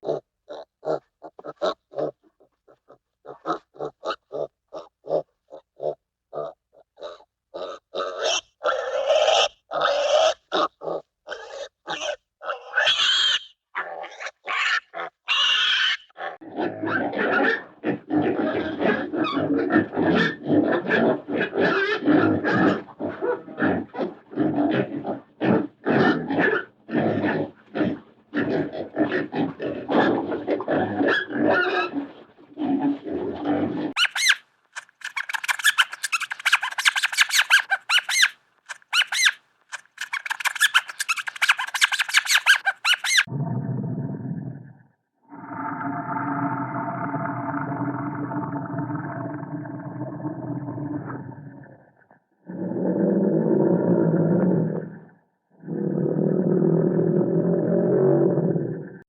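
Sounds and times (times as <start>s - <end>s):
high-pitched chattering: 34.0s - 43.3s.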